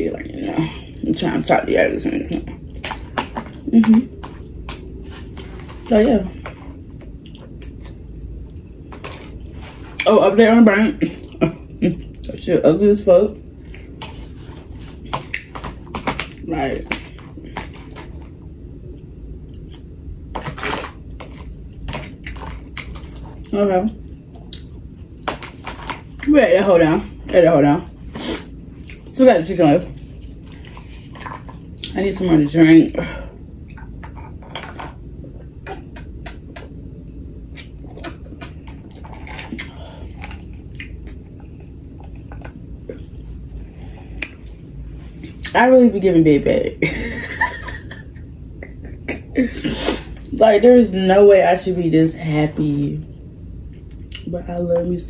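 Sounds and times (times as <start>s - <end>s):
steady low hum: 0.0s - 55.0s
chewing: 2.5s - 10.1s, 24.3s - 26.3s, 37.5s - 43.3s.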